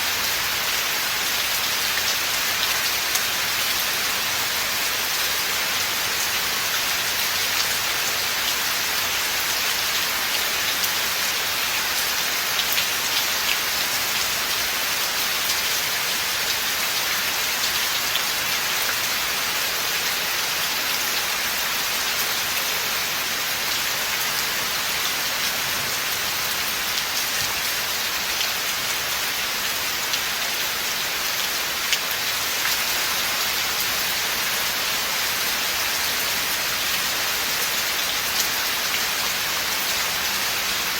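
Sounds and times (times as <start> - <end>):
rain falling in a forest: 0.0 - 40.9.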